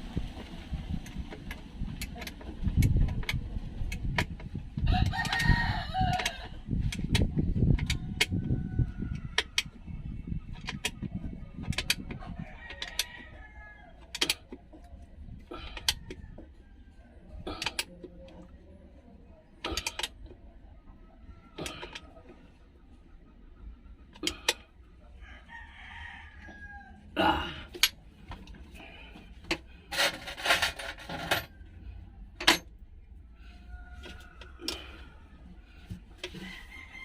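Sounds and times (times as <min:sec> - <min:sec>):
rooster crowing: 0:04.8 - 0:06.6, 0:12.3 - 0:14.1, 0:25.2 - 0:27.1, 0:36.3 - 0:37.0.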